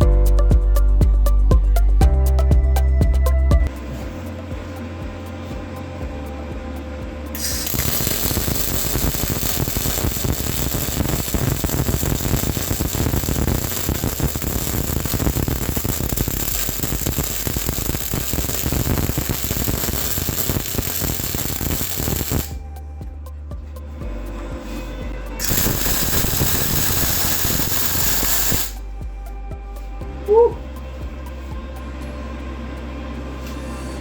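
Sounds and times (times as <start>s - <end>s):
welding arc crackling and hissing: 7.4s - 22.6s, 25.4s - 28.8s.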